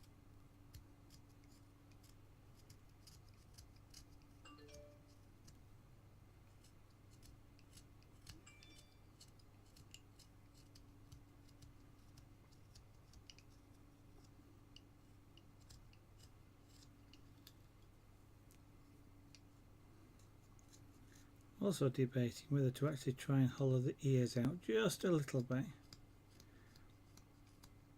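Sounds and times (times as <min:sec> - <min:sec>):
knife carving wood: 0:00.0 - 0:05.7, 0:06.4 - 0:17.9, 0:20.2 - 0:21.3, 0:24.9 - 0:27.9.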